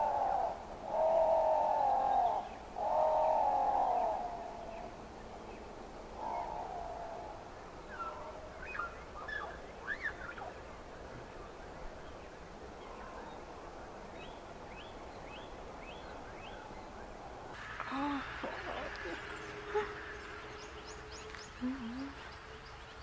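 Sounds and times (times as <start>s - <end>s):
small birds chirping: 7.7s - 23.0s.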